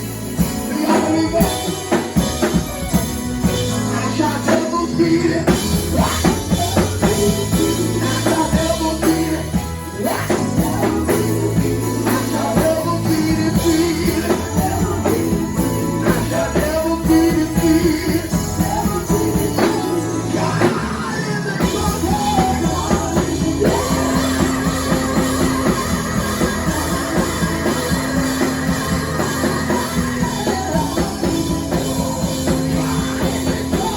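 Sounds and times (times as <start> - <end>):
band music: 0.0 - 33.9
drum kit: 0.0 - 33.9
voices singing: 0.0 - 33.9.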